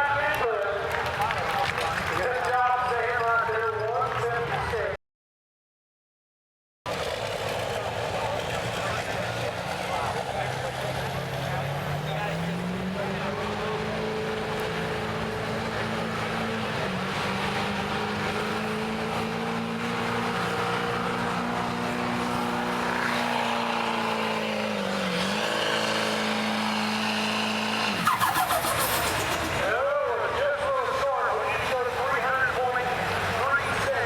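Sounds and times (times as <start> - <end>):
diesel engine at high revs: 6.9 - 34.0.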